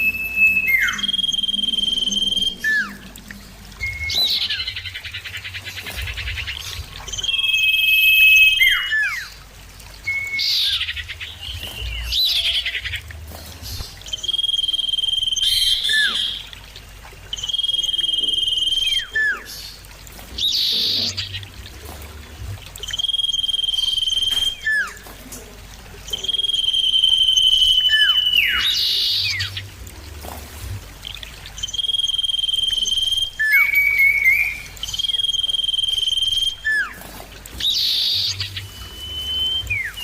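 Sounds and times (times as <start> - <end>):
bird calling high whistle: 0.0 - 3.2, 3.8 - 4.8, 7.1 - 9.4, 14.1 - 16.4, 17.4 - 19.6, 22.8 - 25.0, 26.1 - 29.6, 31.6 - 37.0, 37.6 - 40.0.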